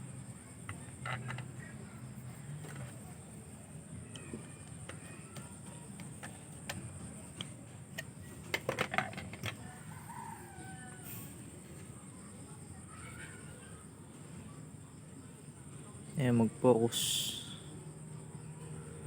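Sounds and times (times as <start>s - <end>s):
rooster crowing faintly: 9.3s - 12.2s.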